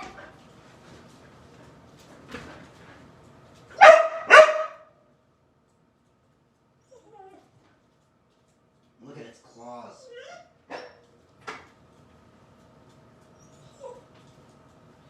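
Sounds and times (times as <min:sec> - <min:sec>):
dog barking: 0:03.8 - 0:04.9, 0:10.7 - 0:11.0.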